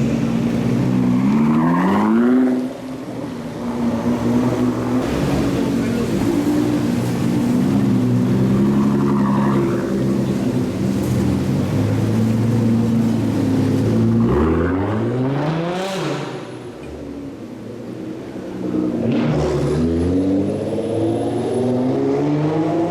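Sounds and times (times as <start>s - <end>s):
engine whine: 0.0s - 17.3s.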